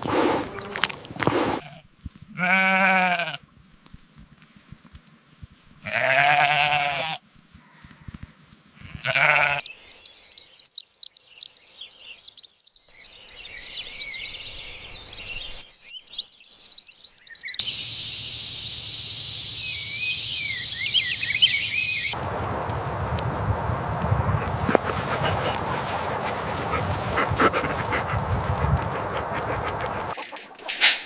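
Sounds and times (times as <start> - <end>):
small birds chirping: 0.0 - 1.6, 9.4 - 30.7
farm animal bleating: 1.6 - 3.4, 5.8 - 8.1, 8.8 - 9.8, 24.3 - 30.6.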